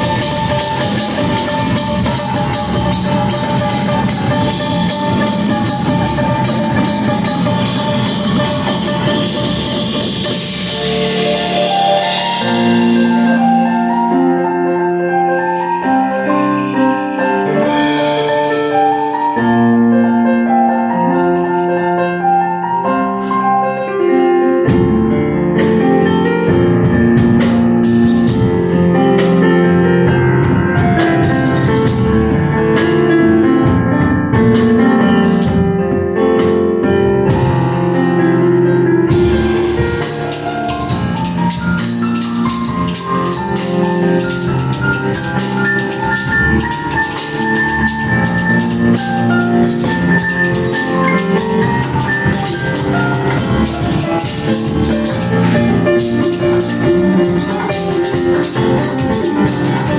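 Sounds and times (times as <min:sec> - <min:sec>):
drums: 0:00.0 - 0:21.6, 0:23.2 - 0:59.9
cymbals ringing: 0:00.0 - 0:22.3, 0:39.4 - 0:59.9
bass: 0:00.0 - 0:59.9
keyboard chords: 0:00.0 - 0:59.9.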